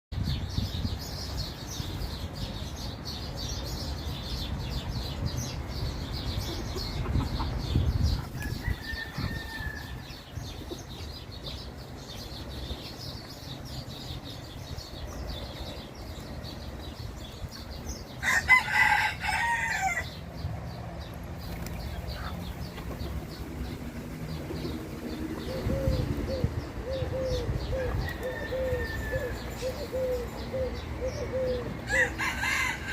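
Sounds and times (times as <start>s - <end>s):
small birds twittering: 0.2s - 32.9s
rooster crowing: 8.4s - 10.2s, 18.2s - 20.1s, 28.0s - 29.5s, 31.8s - 32.9s.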